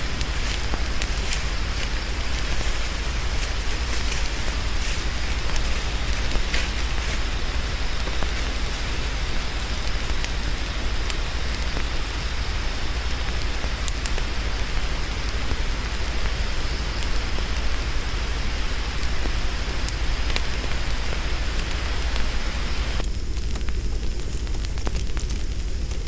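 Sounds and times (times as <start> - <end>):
sharp crackles: 0.0 - 26.0.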